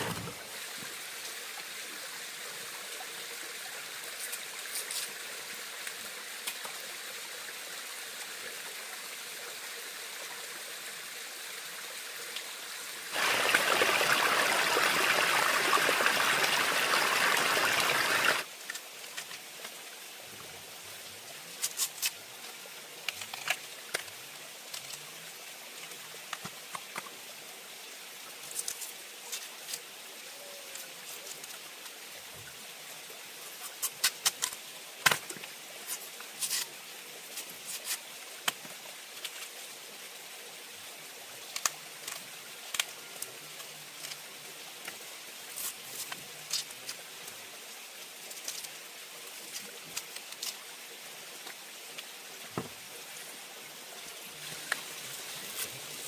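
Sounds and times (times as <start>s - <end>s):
faint steady hiss: 0.0s - 56.0s
water running hard: 13.1s - 18.5s.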